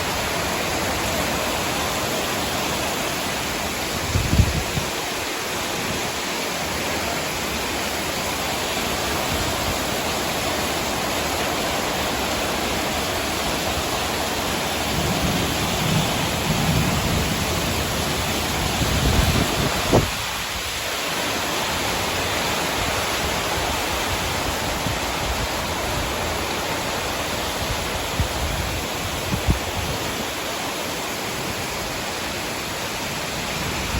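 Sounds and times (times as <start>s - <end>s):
heavy rain hissing: 0.0s - 33.9s
low thunder rumbles: 14.8s - 20.3s.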